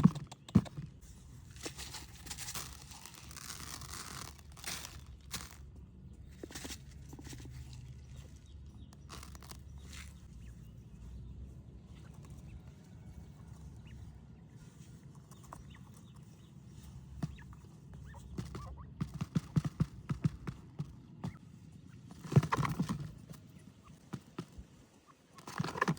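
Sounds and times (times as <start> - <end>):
sharp taps and knocks: 0.0 - 1.0
low steady rumble: 0.8 - 19.1.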